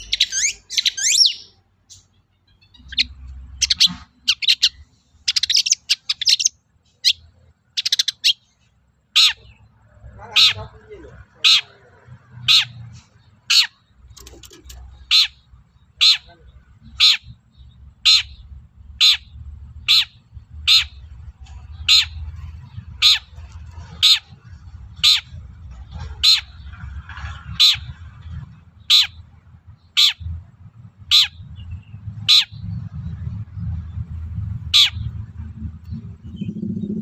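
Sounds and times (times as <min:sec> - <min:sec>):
low background rumble: 0:13.8 - 0:37.0.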